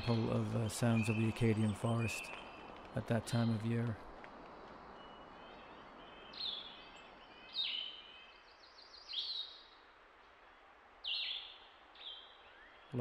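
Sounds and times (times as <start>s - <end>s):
faint steady hiss: 0.0s - 13.0s
songbirds singing: 0.0s - 13.0s.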